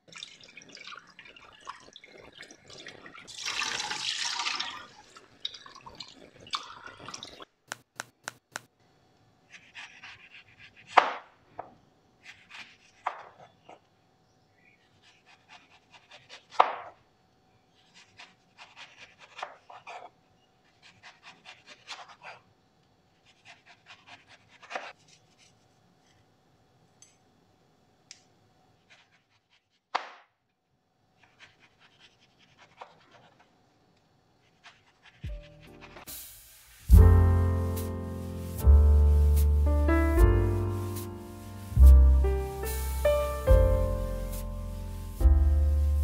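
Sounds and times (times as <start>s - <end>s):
knife cutting fruit: 9.5s - 11.3s, 12.2s - 13.8s, 17.8s - 22.4s, 23.2s - 25.6s, 31.2s - 33.5s.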